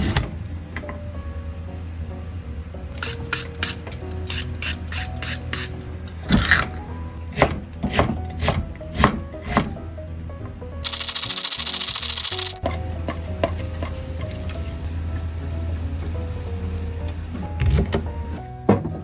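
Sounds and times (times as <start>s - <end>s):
soft background music: 0.0s - 19.0s
utensils clattering on a board: 3.0s - 6.7s.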